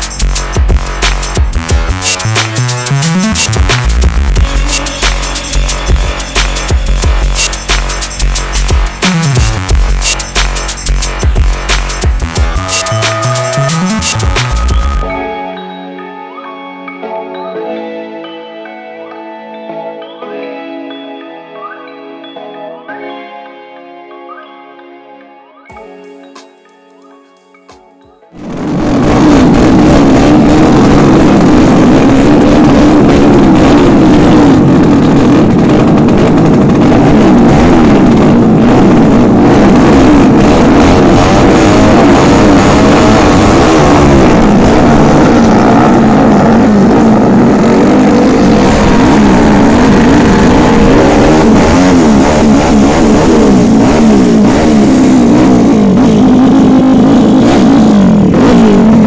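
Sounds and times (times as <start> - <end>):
racing motorcycle engines revving: 28.4 - 59.0.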